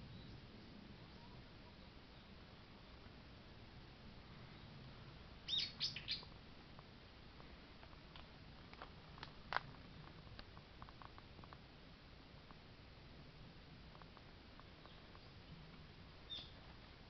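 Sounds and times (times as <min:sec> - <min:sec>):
bird chirping: 0:00.0 - 0:00.5, 0:05.4 - 0:06.3, 0:14.6 - 0:15.6, 0:16.2 - 0:16.6
faint chirps and ticks: 0:04.4 - 0:12.7, 0:13.4 - 0:17.0.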